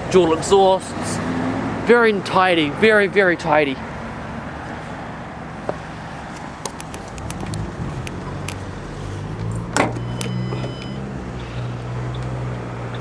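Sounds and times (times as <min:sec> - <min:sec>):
car engine humming: 0:03.9 - 0:13.0.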